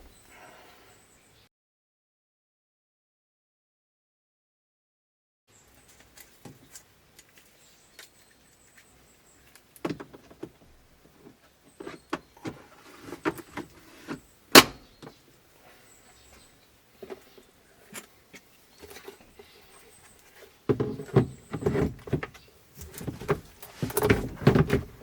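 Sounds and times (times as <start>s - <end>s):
sharp plastic snap: 14.6s - 14.8s.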